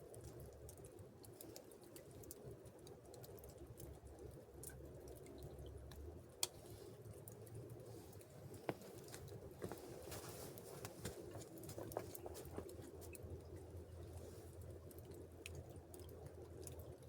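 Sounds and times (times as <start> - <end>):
light ticks: 0.0 - 6.6, 14.8 - 17.0.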